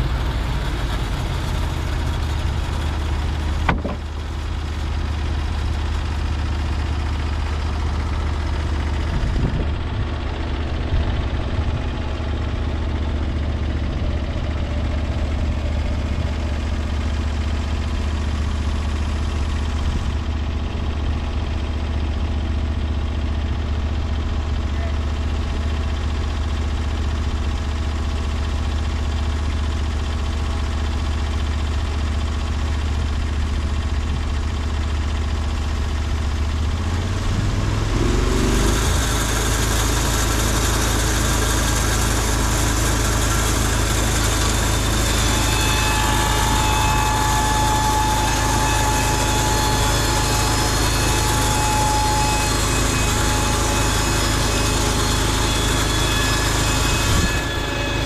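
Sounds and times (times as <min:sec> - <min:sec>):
sawmill engine humming: 0:00.0 - 0:58.0
thin high whine: 0:37.8 - 0:58.0
saw cutting hiss: 0:38.3 - 0:58.0.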